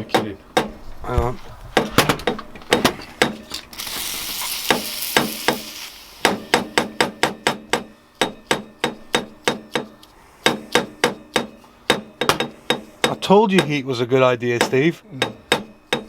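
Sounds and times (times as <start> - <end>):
hammer tapping on metal: 0.0 - 0.8, 1.8 - 3.6, 4.7 - 16.0
steady hiss: 3.5 - 13.2.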